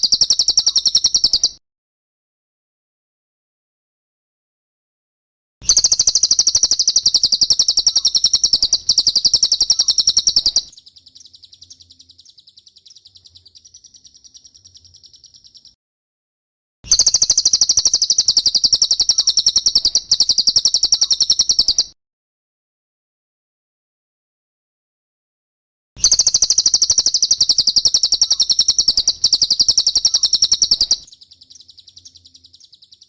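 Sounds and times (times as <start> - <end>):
bird trilling: 0.0 - 1.6, 5.6 - 15.8, 16.9 - 21.9, 26.0 - 33.0.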